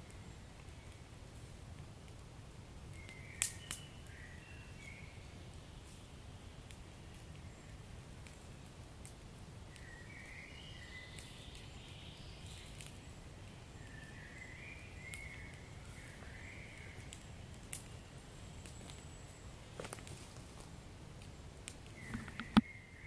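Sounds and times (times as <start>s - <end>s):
wood fire crackling and popping: 0.0s - 4.2s, 5.1s - 22.6s.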